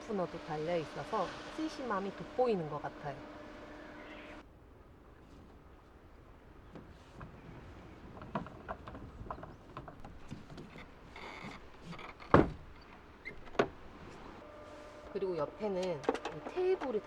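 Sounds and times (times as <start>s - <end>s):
sharp plastic knocks: 11.4s - 12.8s.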